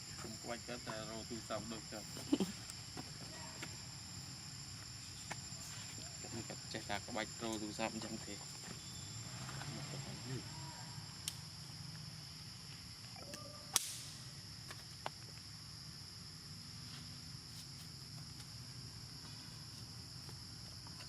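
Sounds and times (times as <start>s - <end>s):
high-pitched insect chorus: 0.0s - 21.0s
sharp cracks: 13.7s - 14.2s.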